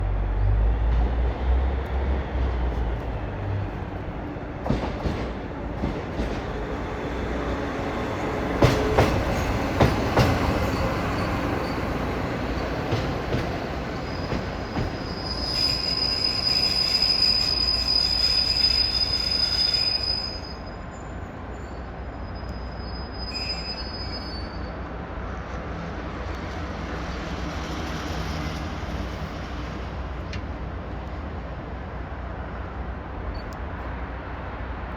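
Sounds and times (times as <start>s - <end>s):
brakes squealing: 13.9s - 24.8s.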